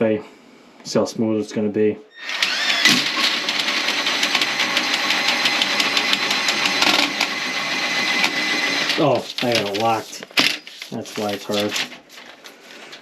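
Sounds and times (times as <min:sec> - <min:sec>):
drain auger motor whining: 0:02.2 - 0:09.5
snake cable rattling in drain: 0:08.8 - 0:13.0.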